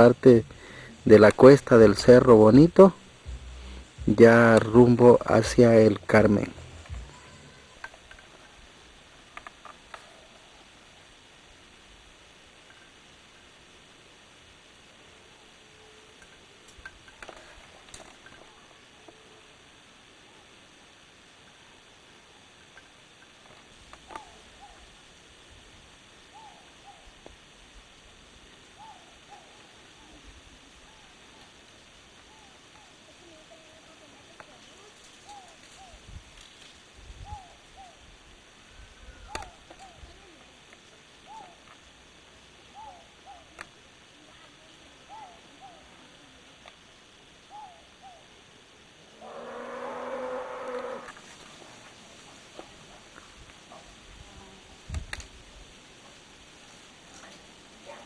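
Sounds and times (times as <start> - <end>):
soft hooting bird call: 24.1 - 24.9, 26.3 - 27.2, 28.7 - 30.2, 32.2 - 33.0, 37.2 - 38.0, 41.2 - 41.7, 42.7 - 43.6, 45.0 - 46.0, 47.4 - 48.4, 49.2 - 51.1.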